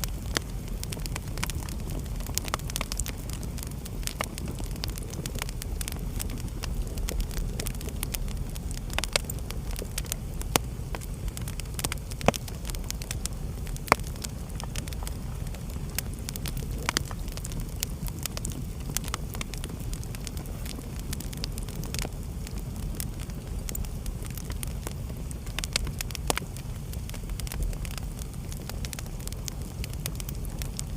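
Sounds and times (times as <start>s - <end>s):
wood fire crackling and popping: 0.0s - 30.9s.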